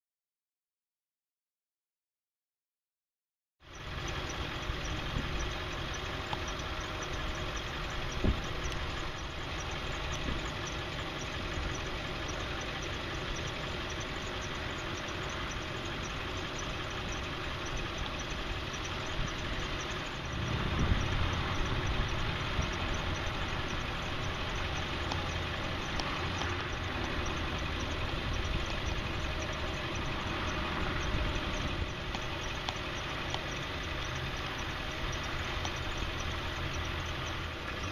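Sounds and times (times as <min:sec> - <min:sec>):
diesel engine idling: 0:03.6 - 0:37.9
sharp click: 0:25.0 - 0:26.8.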